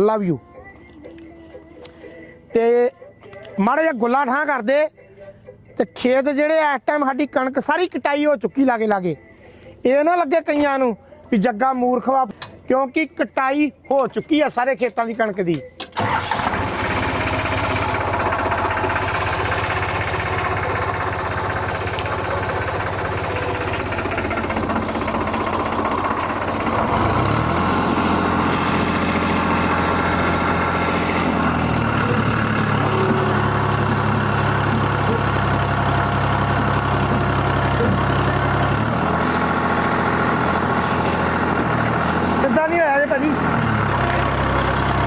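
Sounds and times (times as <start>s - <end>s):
tractor diesel engine revving: 15.9s - 45.0s.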